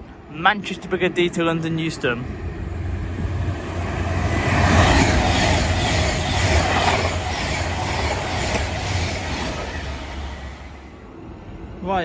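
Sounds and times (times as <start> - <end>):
train wheels clattering over rail joints: 3.5 - 10.9.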